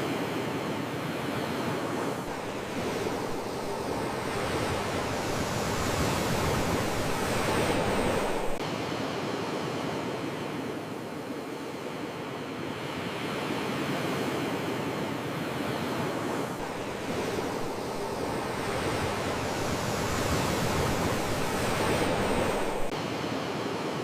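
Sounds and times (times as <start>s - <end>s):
sea waves washing onto shore: 0.7s - 8.6s, 15.4s - 24.0s.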